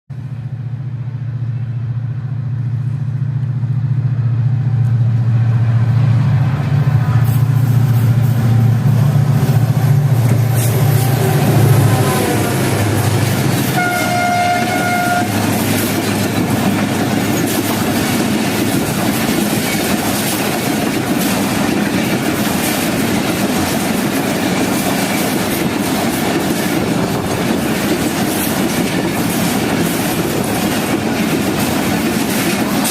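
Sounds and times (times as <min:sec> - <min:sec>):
locomotive drone: 0:00.1 - 0:32.9
train wheels clickety-clack: 0:07.0 - 0:32.9
train horn blast: 0:10.7 - 0:15.8.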